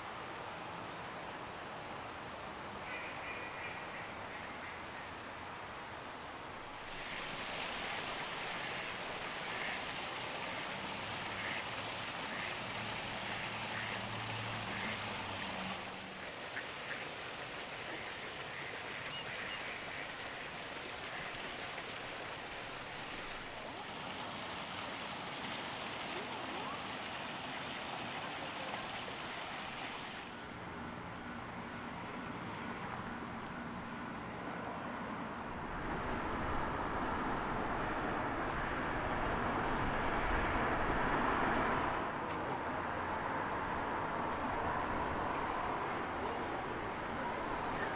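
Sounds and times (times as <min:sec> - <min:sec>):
steady rushing hiss: 0:06.6 - 0:30.4
ducks quacking: 0:13.5 - 0:15.0.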